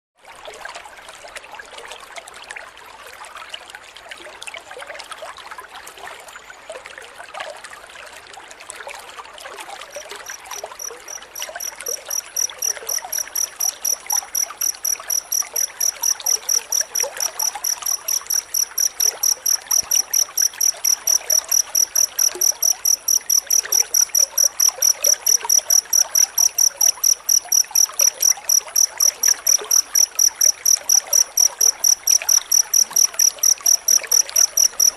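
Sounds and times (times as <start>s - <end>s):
cricket chirping: 10.0s - 34.9s.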